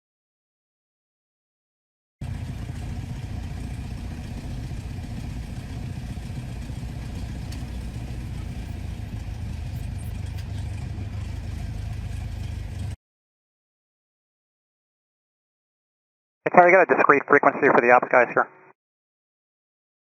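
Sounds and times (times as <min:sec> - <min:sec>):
low engine rumble with clatter: 0:02.2 - 0:13.0.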